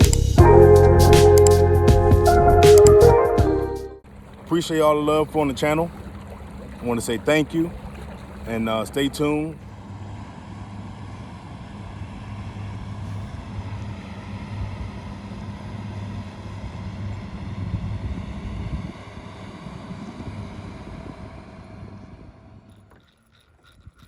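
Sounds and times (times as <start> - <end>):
electric boat motor whine: 0.1 - 24.0
wind rumbling on microphone: 16.3 - 23.0.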